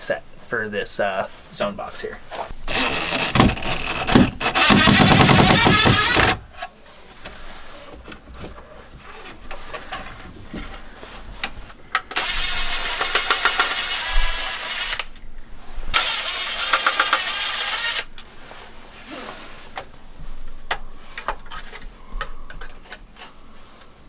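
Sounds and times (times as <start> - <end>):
cordless power driver running: 2.7 - 6.5, 12.1 - 15.2, 15.9 - 18.2.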